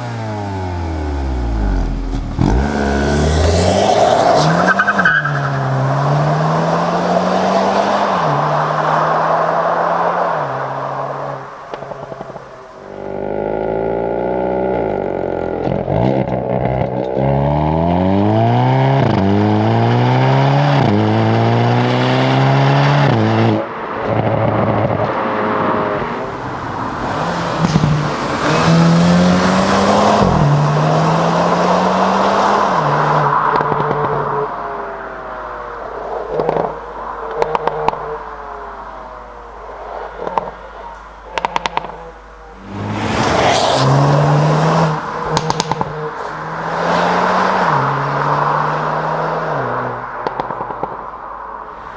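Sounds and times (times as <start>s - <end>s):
car engine accelerating hard: 0.0s - 51.9s
exhaust pops: 0.8s - 5.6s, 26.2s - 49.0s, 49.6s - 51.9s.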